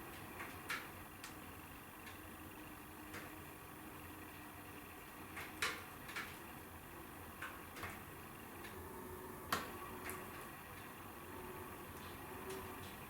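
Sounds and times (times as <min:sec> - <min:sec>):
wood fire crackling and popping: 0:00.0 - 0:11.2.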